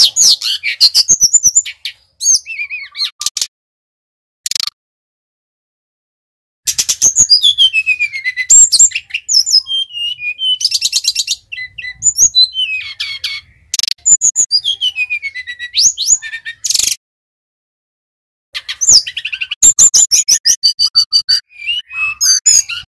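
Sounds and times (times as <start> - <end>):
flycatcher singing trills and whistles: 0.0 - 3.4, 6.7 - 17.0, 18.6 - 22.9.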